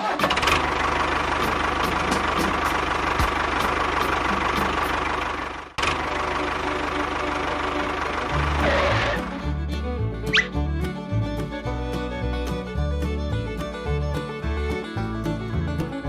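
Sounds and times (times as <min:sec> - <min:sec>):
engine running with ticking knock: 0:00.0 - 0:10.4.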